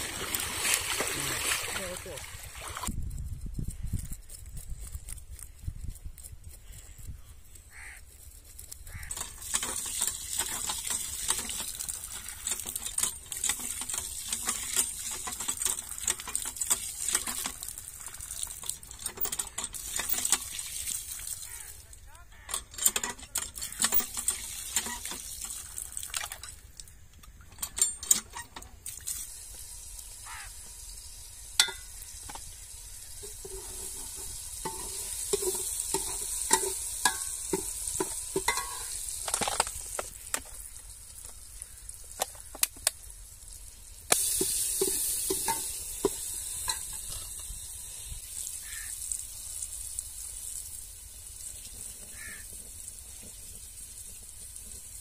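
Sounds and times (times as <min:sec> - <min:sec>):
food sizzling in hot oil: 0:08.9 - 0:19.0, 0:28.9 - 0:42.1, 0:43.0 - 0:55.0.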